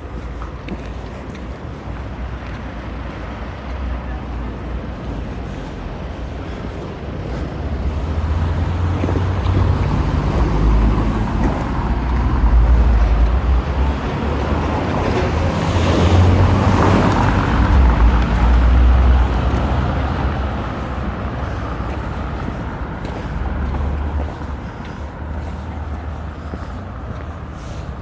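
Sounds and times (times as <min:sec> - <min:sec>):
low street rumble: 0:00.0 - 0:28.0.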